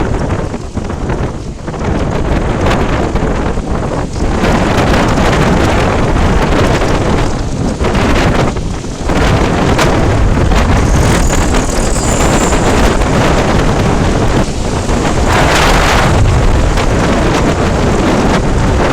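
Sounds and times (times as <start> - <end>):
wind buffeting microphone: 0.0 - 18.9
road noise: 8.8 - 18.9.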